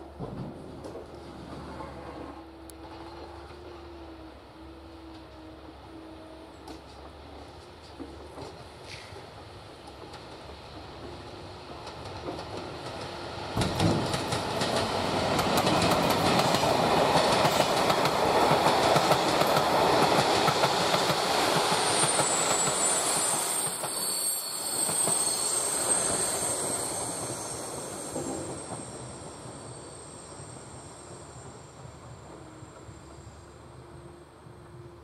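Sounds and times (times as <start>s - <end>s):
train wheels clattering over joints: 9.9s - 22.8s
high wheel squeal: 21.7s - 31.8s.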